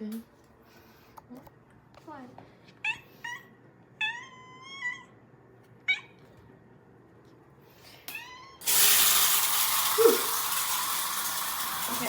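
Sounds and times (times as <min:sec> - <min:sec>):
cat meowing: 0:02.8 - 0:05.2.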